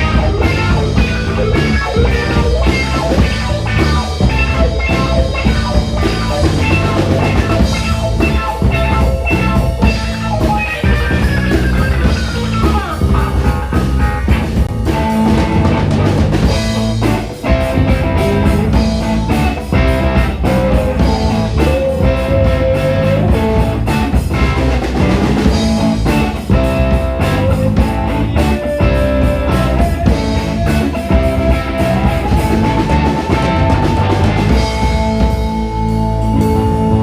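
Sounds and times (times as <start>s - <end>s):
bass guitar: 0.0s - 37.0s
drum kit: 0.0s - 37.0s
electric guitar bending notes: 0.0s - 37.0s
live funk-rock band: 0.0s - 37.0s.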